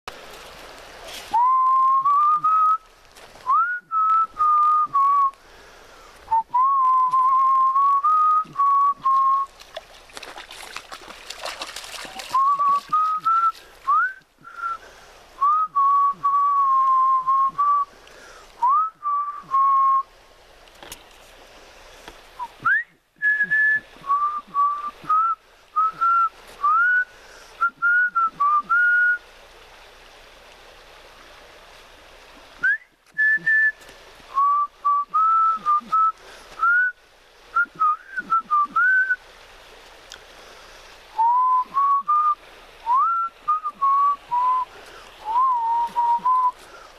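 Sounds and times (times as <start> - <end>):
person whistling a tune: 1.3 - 5.4, 6.3 - 9.5, 12.2 - 14.8, 15.4 - 17.9, 18.6 - 20.1, 22.4 - 29.2, 32.6 - 37.0, 37.6 - 39.2, 41.2 - 46.6.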